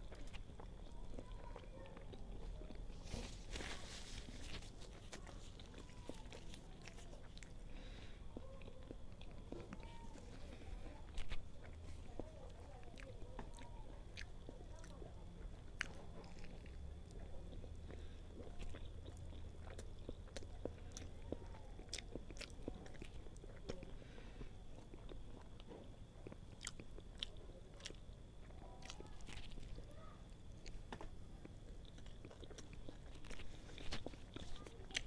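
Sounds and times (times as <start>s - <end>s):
chewing soft bun: 0.0s - 35.0s.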